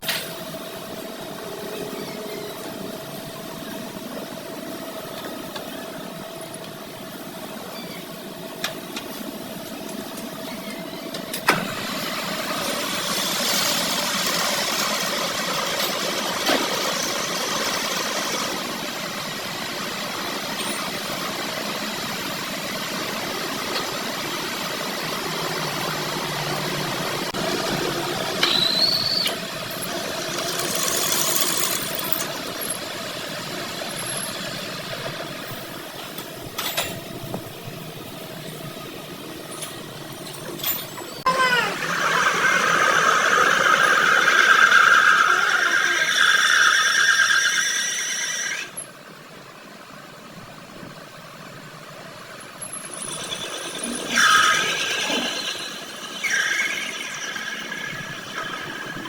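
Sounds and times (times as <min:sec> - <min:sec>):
machine running: 0:00.0 - 0:48.8, 0:52.4 - 0:59.0
high squeal: 0:28.4 - 0:29.5, 0:52.8 - 0:59.0.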